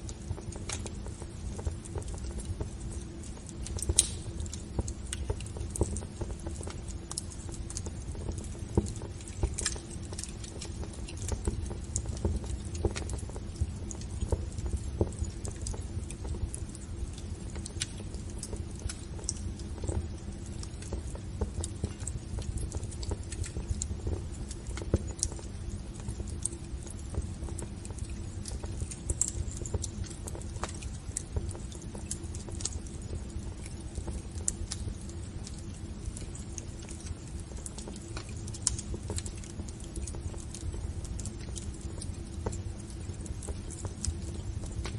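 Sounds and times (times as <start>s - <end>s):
wood fire crackling: 0.0s - 44.9s.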